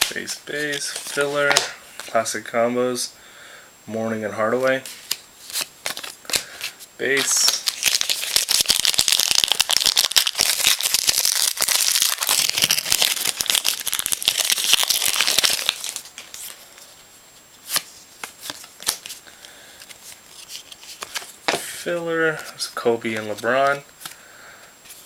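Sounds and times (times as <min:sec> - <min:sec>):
wrapper tearing and crinkling: 0:05.5 - 0:06.5, 0:07.2 - 0:16.6.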